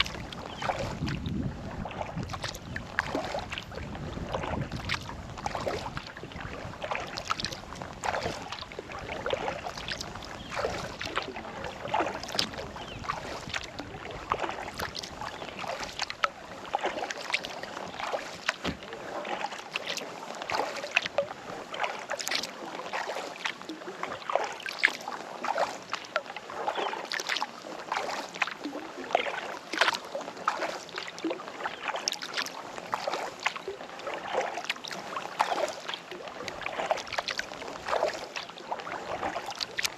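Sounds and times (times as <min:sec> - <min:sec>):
wind rumble on microphone: 0:00.0 - 0:16.8
paddle splashing in water: 0:00.0 - 0:39.9
water dripping from paddle: 0:00.0 - 0:39.9.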